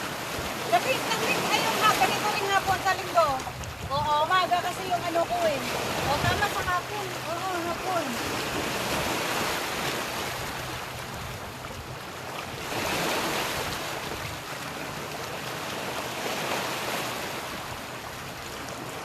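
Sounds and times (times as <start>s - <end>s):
wind on microphone: 0.0s - 14.5s
sea waves washing onto shore: 0.0s - 19.0s.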